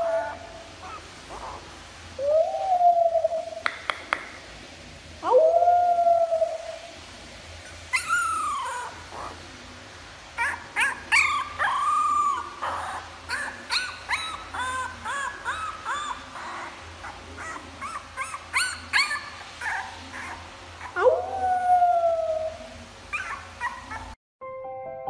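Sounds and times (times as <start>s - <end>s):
puppy howling and whimpering: 0.0s - 1.6s, 5.2s - 6.8s, 7.7s - 9.4s, 10.4s - 24.2s
puppy yelping: 0.0s - 1.6s, 7.6s - 9.4s, 10.4s - 24.2s.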